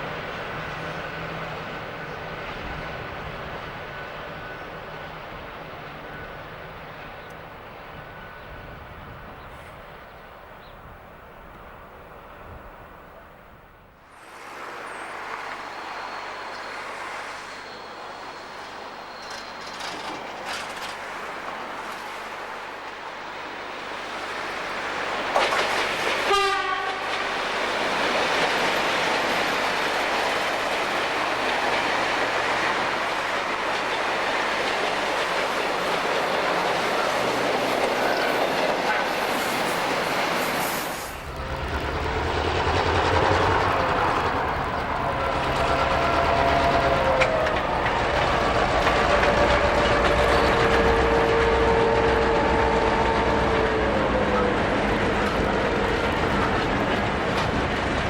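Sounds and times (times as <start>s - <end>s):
train wheels clattering on rails: 14.3s - 58.0s
train horn held notes: 26.2s - 27.4s, 41.2s - 56.5s
locomotive engine throb: 41.2s - 58.0s.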